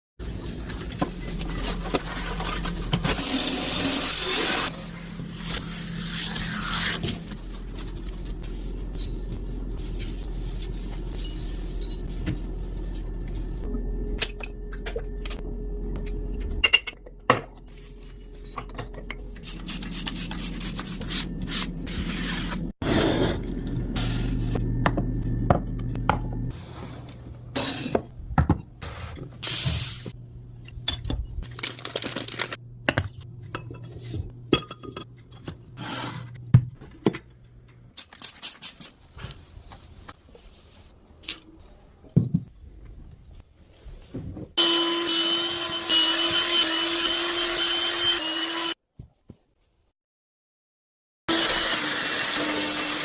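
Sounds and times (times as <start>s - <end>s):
steady low hum: 7.2s - 28.4s.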